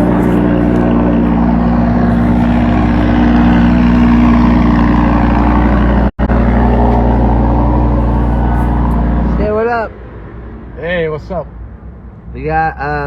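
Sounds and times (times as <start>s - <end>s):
car engine running: 0.0s - 9.9s.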